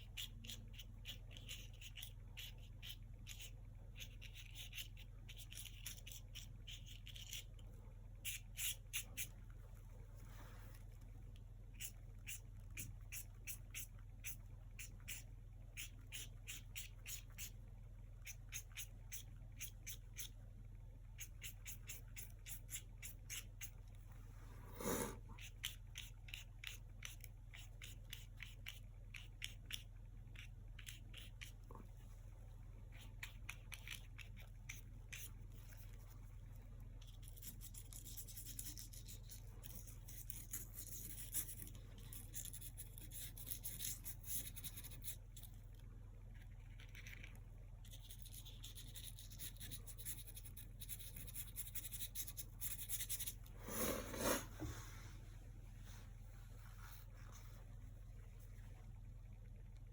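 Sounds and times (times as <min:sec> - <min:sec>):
faint low electrical hum: 0:00.0 - 0:59.9
paintbrush swishing on canvas: 0:53.6 - 0:55.2.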